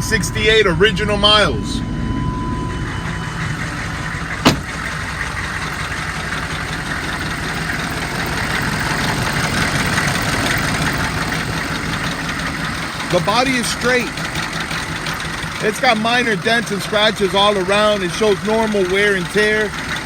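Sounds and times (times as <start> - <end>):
diesel engine idling: 0.4 - 20.0.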